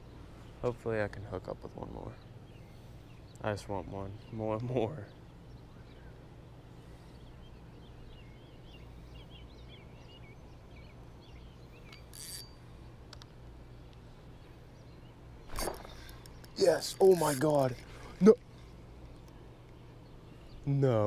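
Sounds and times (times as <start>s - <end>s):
low outdoor hum: 0.0s - 21.0s
bird chirping: 1.5s - 12.7s.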